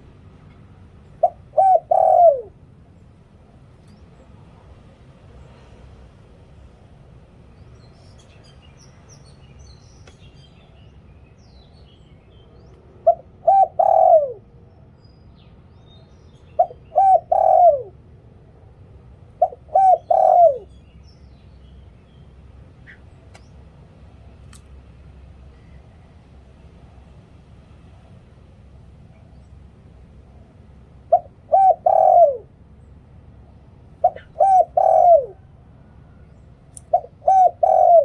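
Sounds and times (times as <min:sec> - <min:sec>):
dove cooing: 0:01.1 - 0:02.6, 0:13.0 - 0:14.5, 0:16.6 - 0:18.0, 0:19.3 - 0:20.8, 0:31.0 - 0:32.6, 0:33.9 - 0:35.6, 0:36.9 - 0:38.0
small birds chirping: 0:07.5 - 0:12.9, 0:19.4 - 0:24.8, 0:33.9 - 0:35.3.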